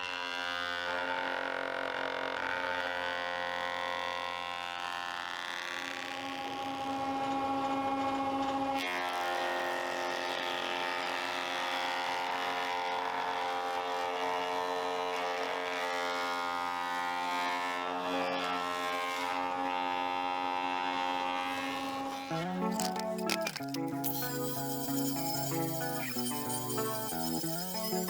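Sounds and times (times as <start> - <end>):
power tool motor buzzing: 21.5 - 28.0.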